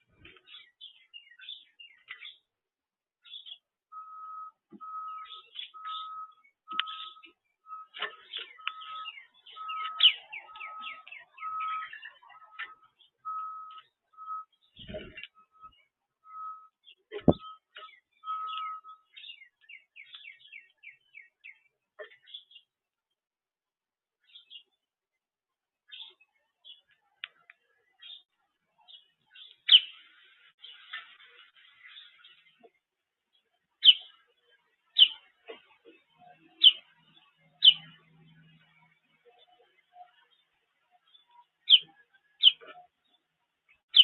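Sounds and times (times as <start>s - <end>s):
birds whistling and chirping: 0.2s - 2.5s, 3.2s - 22.6s, 28.9s - 31.1s, 33.8s - 34.2s, 34.9s - 35.3s, 36.2s - 38.8s, 41.0s - 43.2s, 43.8s - 44.0s
songbird twittering: 3.2s - 22.7s, 28.9s - 30.0s, 33.8s - 34.2s, 34.9s - 35.3s, 36.2s - 40.4s, 41.0s - 43.0s.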